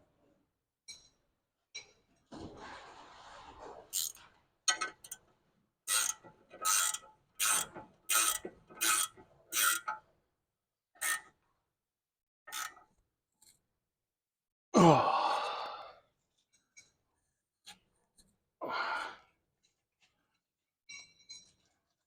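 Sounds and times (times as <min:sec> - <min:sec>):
ratchet wrench clicking: 0:04.0 - 0:05.2, 0:05.9 - 0:09.9, 0:11.0 - 0:11.2, 0:12.5 - 0:12.8.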